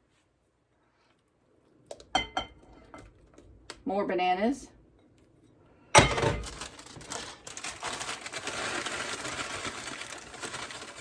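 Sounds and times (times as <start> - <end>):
plastic wrapper crinkling: 6.4 - 11.0.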